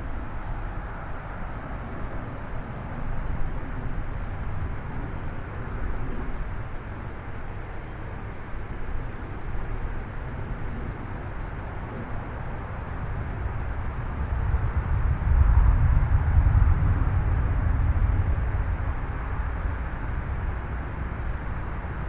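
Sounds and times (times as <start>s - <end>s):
rain hiss: 0.0s - 22.0s
wind buffeting microphone: 8.6s - 22.0s.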